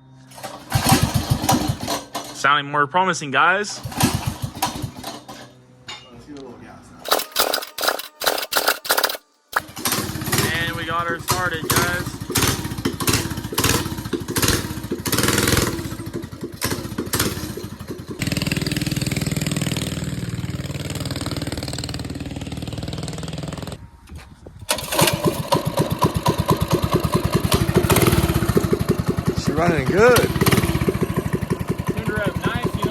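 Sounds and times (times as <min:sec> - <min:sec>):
small single-cylinder engine running: 0:00.2 - 0:02.4, 0:03.8 - 0:05.6, 0:07.0 - 0:23.8, 0:24.7 - 0:32.9.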